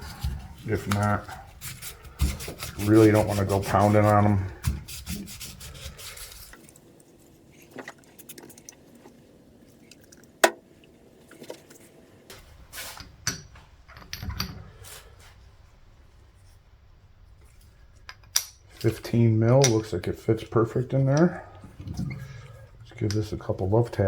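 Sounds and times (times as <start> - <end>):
sandpaper rubbing: 0.0 - 6.6.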